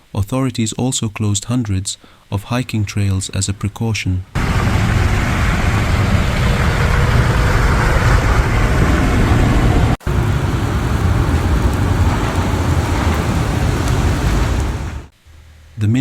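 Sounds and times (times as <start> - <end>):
road traffic rumble: 10.0 - 15.1.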